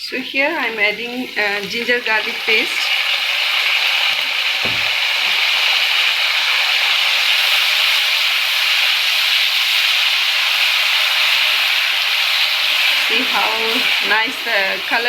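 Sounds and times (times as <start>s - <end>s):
food sizzling in hot oil: 0.1s - 15.0s
low knock: 4.6s - 5.4s.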